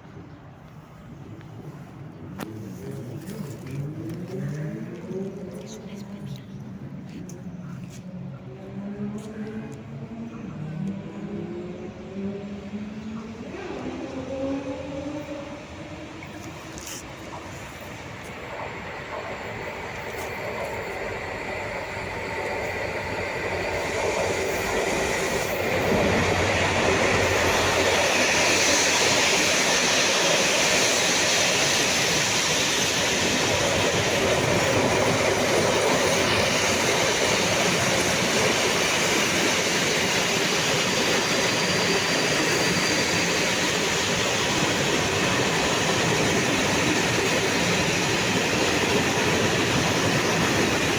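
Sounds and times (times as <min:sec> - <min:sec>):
freight train passing: 0:00.0 - 0:50.9.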